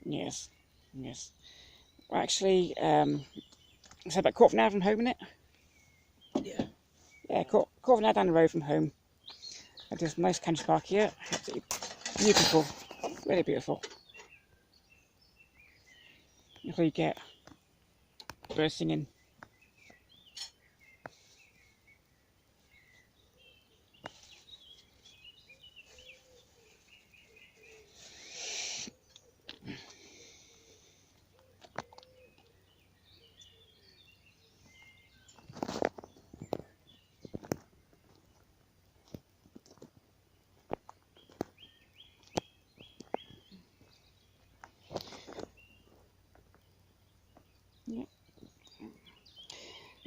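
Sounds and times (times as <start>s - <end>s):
birds chirping and warbling: 0.0s - 50.0s
lower bird calls: 12.6s - 38.4s, 40.9s - 50.0s
brief rustle: 35.4s - 36.7s.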